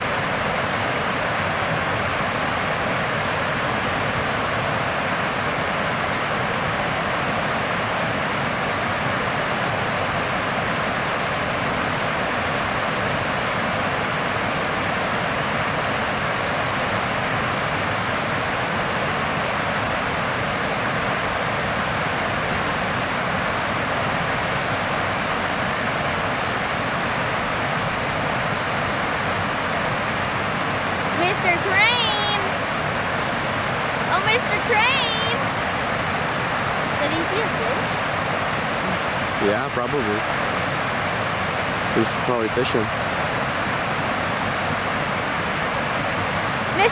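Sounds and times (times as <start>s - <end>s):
rushing water: 0.0s - 46.9s.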